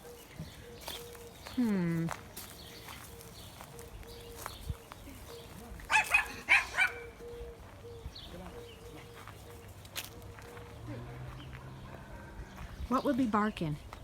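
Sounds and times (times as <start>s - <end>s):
dog barking: 5.9s - 7.2s.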